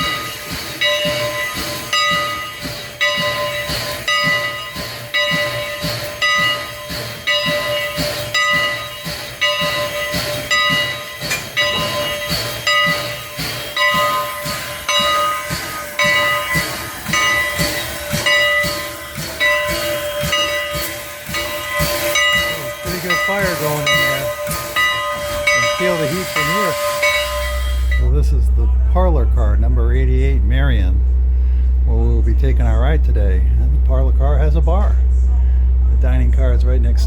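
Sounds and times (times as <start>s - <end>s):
steam locomotive rhythmic beat: 0.0s - 37.0s
hiss of steam: 11.1s - 28.0s.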